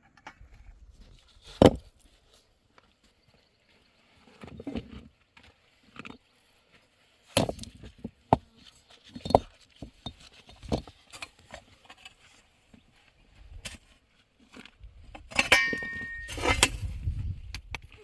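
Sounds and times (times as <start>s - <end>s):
knocks and clinks of hard objects: 15.3s - 16.7s.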